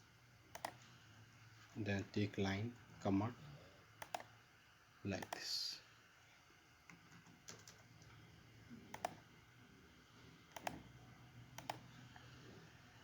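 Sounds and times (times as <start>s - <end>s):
faint low hum: 0.0s - 13.0s
computer mouse clicking: 0.5s - 0.8s, 4.0s - 4.3s, 5.2s - 5.4s, 6.9s - 8.1s, 8.9s - 9.3s, 10.5s - 12.3s.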